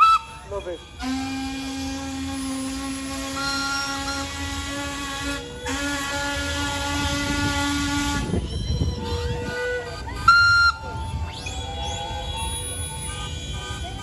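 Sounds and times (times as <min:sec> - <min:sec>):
steam whistle blowing: 0:00.0 - 0:14.0
faint higher whistle tones: 0:08.2 - 0:13.8.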